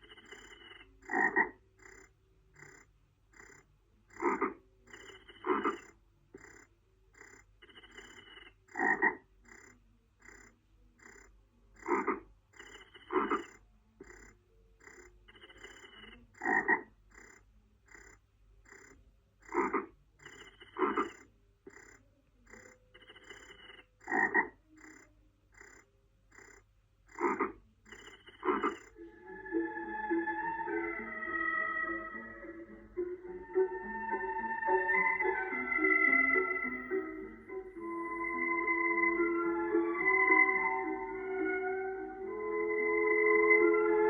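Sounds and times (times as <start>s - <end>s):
frogs croaking in chorus: 0.0s - 44.0s
loud frog croaks: 0.0s - 44.0s
soft music with held tones: 28.8s - 44.0s.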